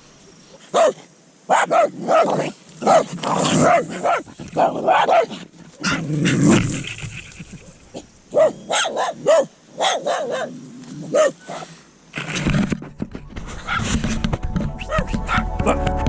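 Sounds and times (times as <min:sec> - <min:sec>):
dog barking: 0:00.7 - 0:06.0, 0:08.3 - 0:11.6, 0:14.9 - 0:15.5.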